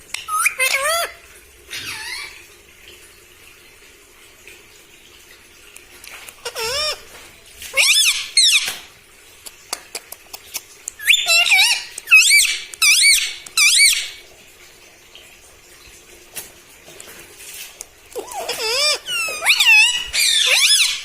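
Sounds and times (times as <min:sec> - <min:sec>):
parakeet shrill calls: 0:00.1 - 0:01.1, 0:06.4 - 0:07.0, 0:07.8 - 0:08.8, 0:11.0 - 0:14.2, 0:18.2 - 0:21.0.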